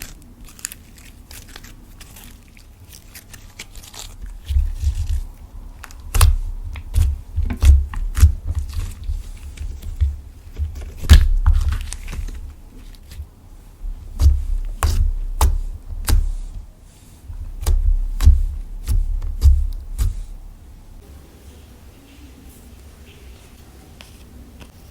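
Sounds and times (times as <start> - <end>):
slime clicking and popping: 5.8 - 9.0.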